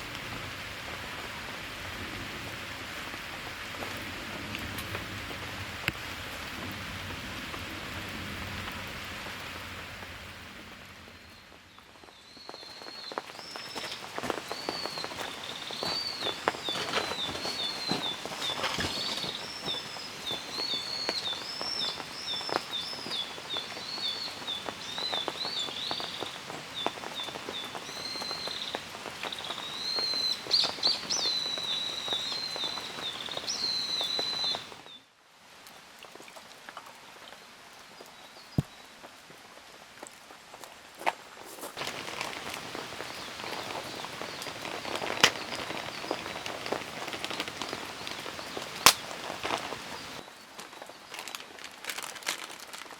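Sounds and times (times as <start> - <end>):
rain pattering and dripping: 0.0 - 52.9
bird chirping: 11.7 - 35.0, 41.8 - 50.3.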